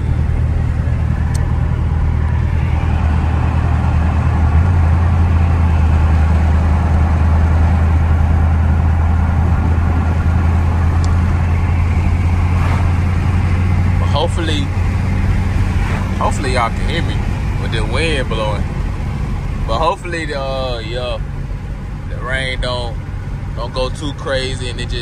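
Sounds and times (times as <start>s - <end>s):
car engine droning: 0.0s - 25.0s
road and wind noise: 0.0s - 25.0s.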